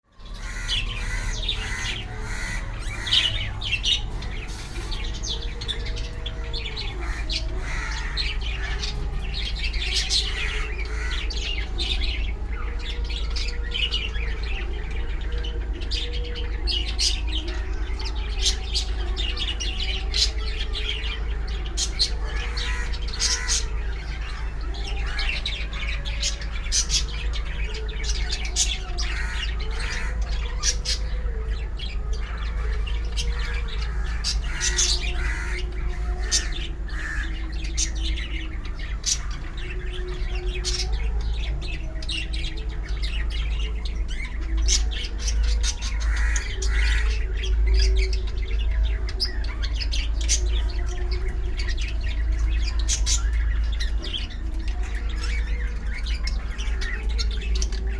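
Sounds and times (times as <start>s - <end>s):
birds chirping and squawking: 0.0s - 57.9s.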